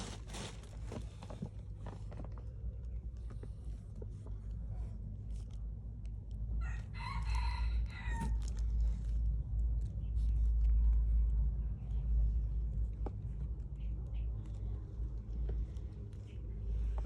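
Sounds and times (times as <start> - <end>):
steady low rumble: 0.0 - 17.0
rooster crowing: 6.6 - 8.4.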